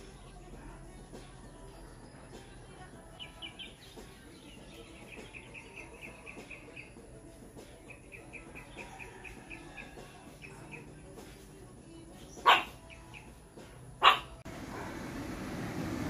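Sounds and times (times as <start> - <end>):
small bird chirping: 1.6 - 14.4.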